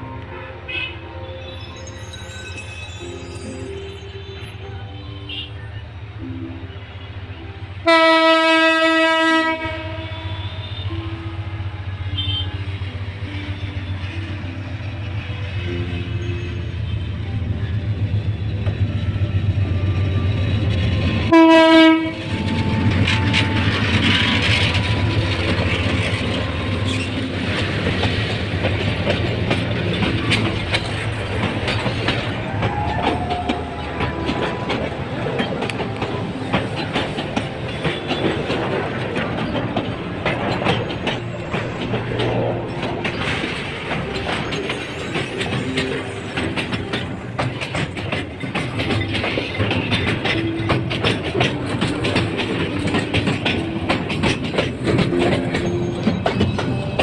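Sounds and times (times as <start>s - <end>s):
locomotive horn blast: 7.8s - 11.2s, 12.1s - 12.7s, 21.2s - 24.4s
train wheels clattering on rails: 12.2s - 57.0s.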